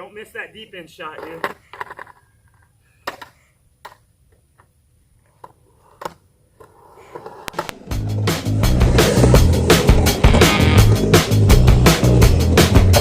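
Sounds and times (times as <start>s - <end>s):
skateboard wheels rolling on concrete: 0.0s - 13.0s.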